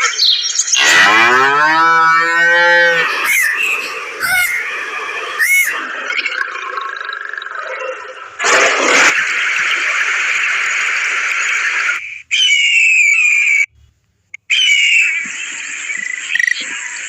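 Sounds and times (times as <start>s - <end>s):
cow mooing: 0.8s - 4.6s
short high gliding calls: 2.1s - 5.9s.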